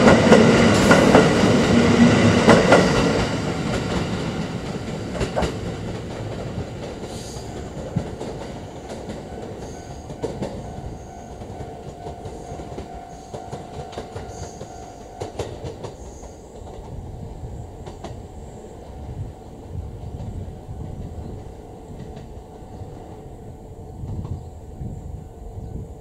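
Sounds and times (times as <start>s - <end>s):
train wheels clacking over rail joints: 0.0s - 17.0s
train running rumble: 0.0s - 26.0s.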